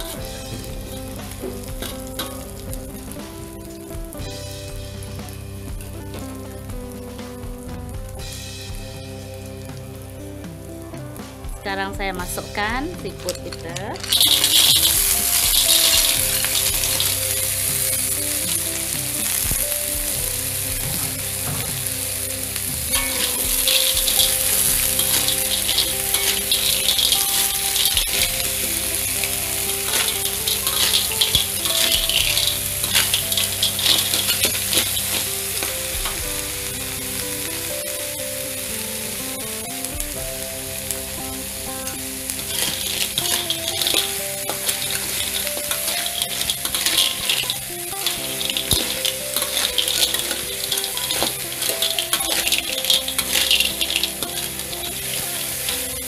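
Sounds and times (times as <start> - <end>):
snails sizzling in hot oil: 0.0 - 56.0
metal spatula scraping a wok: 14.0 - 19.6, 22.5 - 35.8, 42.4 - 55.9.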